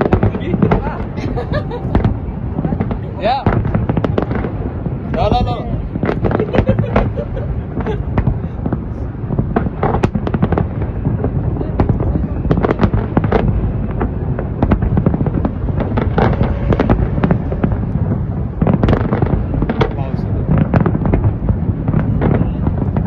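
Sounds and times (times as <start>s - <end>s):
fireworks bangs and crackles: 0.0s - 23.0s
low rumble: 0.0s - 23.0s.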